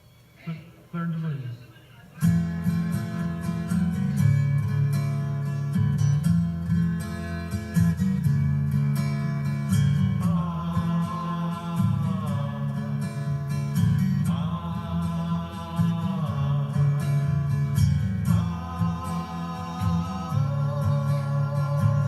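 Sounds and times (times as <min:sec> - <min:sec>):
strummed acoustic guitar: 0:02.1 - 0:22.0
person singing long notes: 0:10.2 - 0:13.0, 0:14.2 - 0:22.0.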